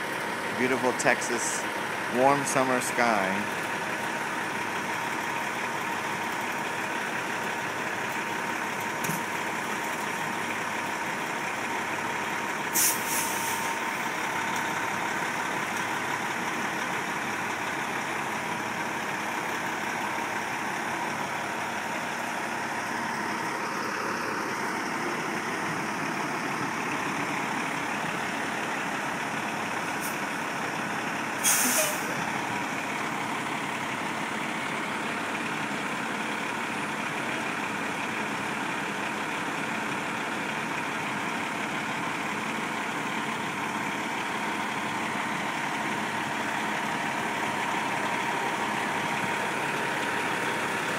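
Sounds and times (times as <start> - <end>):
heavy vehicle engine running: 0.0 - 50.9
air brake hisses: 12.7 - 13.7, 31.4 - 32.2.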